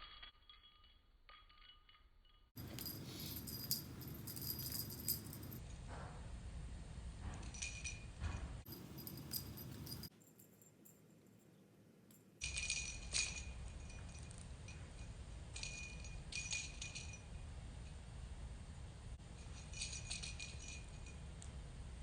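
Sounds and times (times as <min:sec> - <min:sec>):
small bell jingling: 0:00.0 - 0:05.6, 0:08.7 - 0:11.6.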